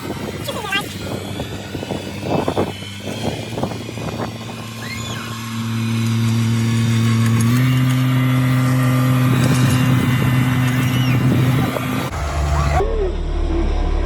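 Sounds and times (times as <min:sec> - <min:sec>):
tractor engine under load: 0:05.4 - 0:12.3.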